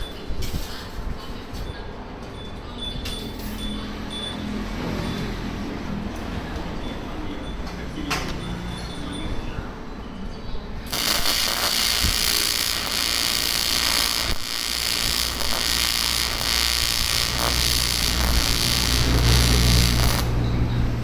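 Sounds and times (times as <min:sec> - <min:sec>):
welding arc hissing: 0:10.9 - 0:20.4.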